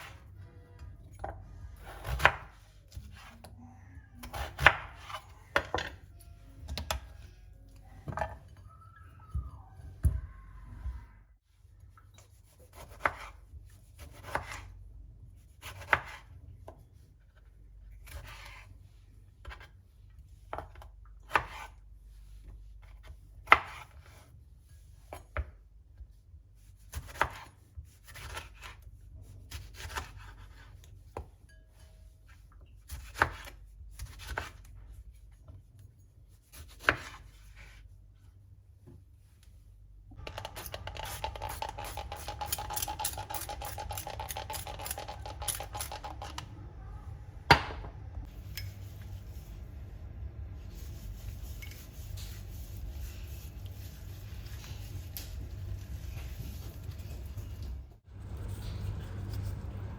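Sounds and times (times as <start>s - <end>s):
knife chopping on cutting board: 12.7s - 13.4s, 14.0s - 14.6s, 20.5s - 21.7s, 26.9s - 28.7s
low steady hum: 33.5s - 59.9s.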